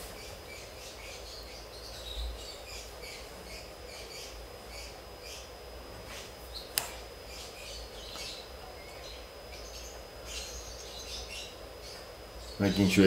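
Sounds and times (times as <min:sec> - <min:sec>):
faint birdsong chirps: 0:00.0 - 0:13.0
sharp click: 0:06.7 - 0:07.0.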